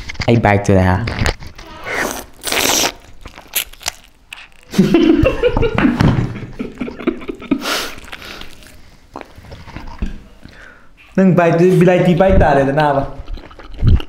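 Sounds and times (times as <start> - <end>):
wet chewing and biting: 1.3 - 4.8, 7.8 - 10.6, 13.1 - 14.0.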